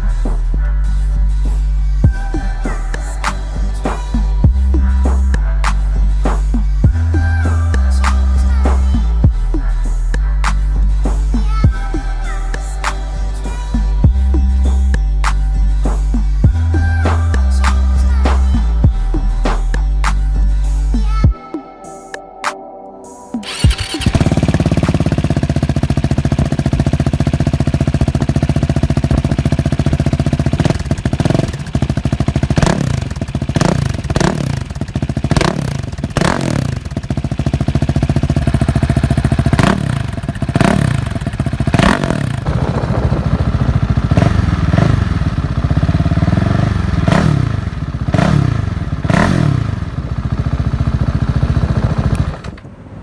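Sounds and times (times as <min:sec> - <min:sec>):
motorcycle engine revving: 0:23.4 - 0:52.7.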